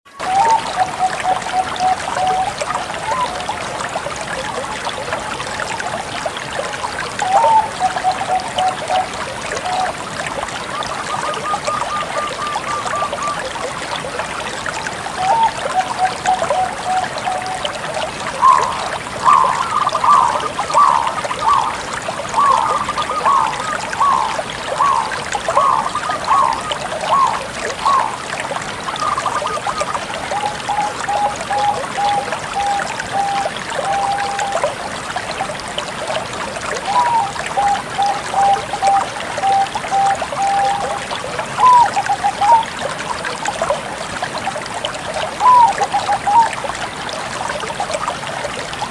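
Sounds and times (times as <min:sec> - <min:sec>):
dove cooing: 0:18.4 - 0:21.8, 0:22.4 - 0:28.1, 0:41.6 - 0:42.6, 0:45.4 - 0:46.4.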